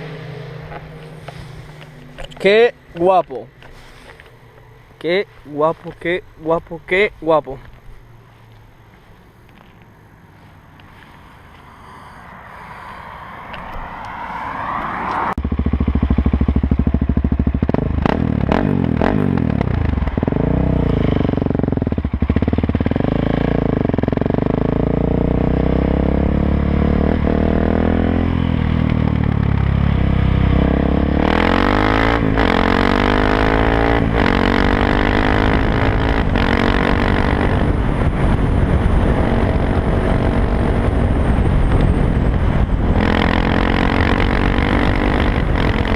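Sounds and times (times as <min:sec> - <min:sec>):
motorcycle engine revving: 0:00.0 - 0:06.6, 0:13.6 - 0:45.9.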